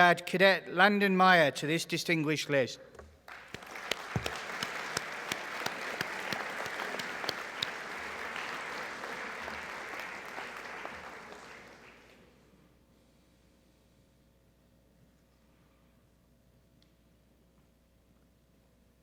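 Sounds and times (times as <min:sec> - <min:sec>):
audience applauding: 0:03.3 - 0:12.3.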